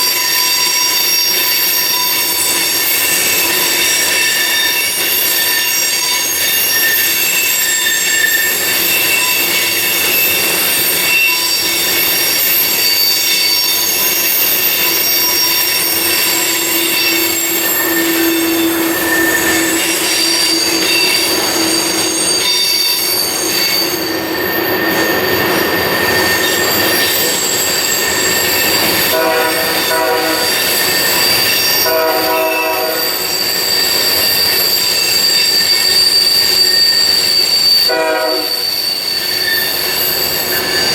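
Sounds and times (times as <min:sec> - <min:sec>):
train wheels squealing on rail: 0:00.0 - 0:40.9
horn blasts: 0:29.1 - 0:30.6, 0:31.8 - 0:33.2, 0:37.9 - 0:38.7.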